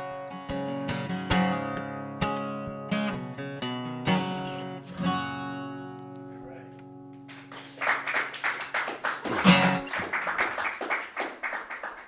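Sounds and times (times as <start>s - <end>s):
acoustic guitar strumming: 0.0s - 7.5s, 9.2s - 10.1s.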